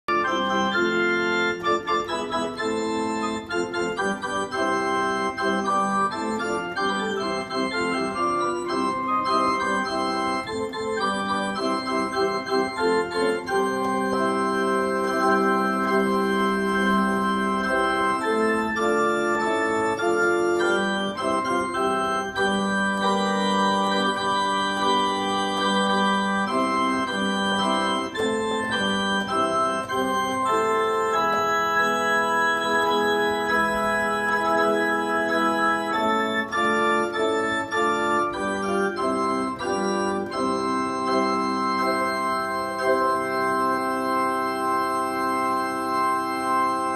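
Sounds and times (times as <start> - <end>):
electronic keyboard organ chords: 0.0 - 46.9.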